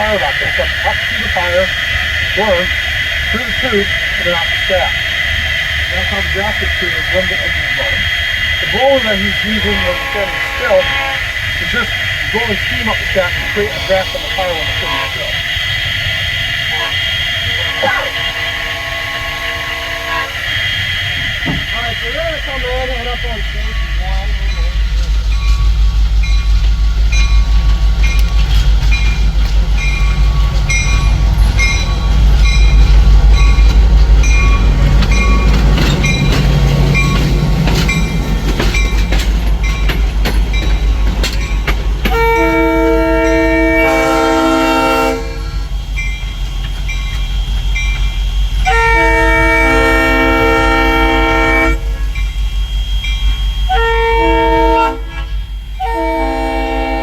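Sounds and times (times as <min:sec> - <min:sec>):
locomotive chime whistle: 0:00.0 - 0:57.0
steam locomotive rumbling: 0:00.0 - 0:57.0
rhythmic clicking: 0:21.2 - 0:43.6.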